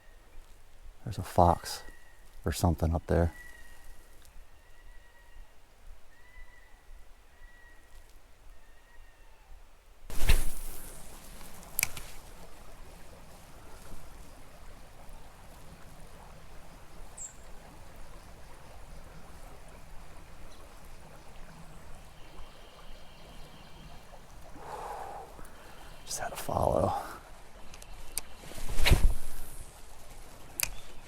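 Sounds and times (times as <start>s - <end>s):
creek water running: 0.6s - 4.4s, 10.1s - 31.0s
sharp click: 11.8s - 12.0s, 30.6s - 30.8s.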